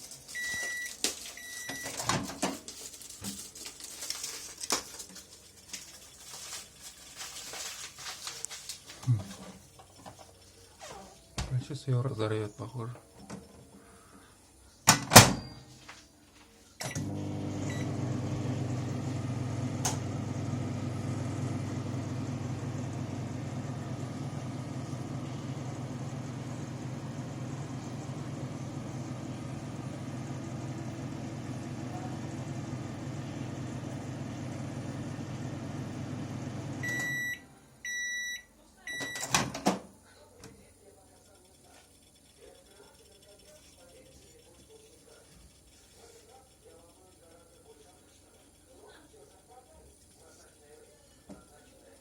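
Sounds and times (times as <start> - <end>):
microwave oven humming: 16.8 - 39.6
microwave click: 19.7 - 20.2.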